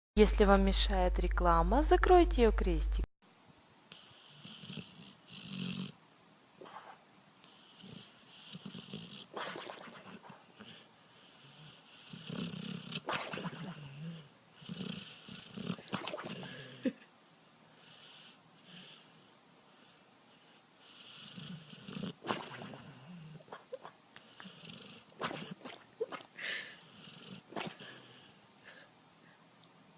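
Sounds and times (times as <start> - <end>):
dog snoring: 3.9 - 6.0, 6.6 - 16.9, 17.8 - 25.8, 26.5 - 28.9.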